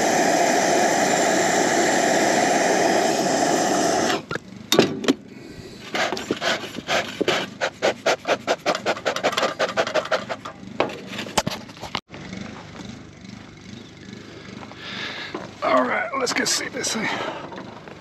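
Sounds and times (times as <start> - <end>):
bellows puffing: 5.3 - 10.4.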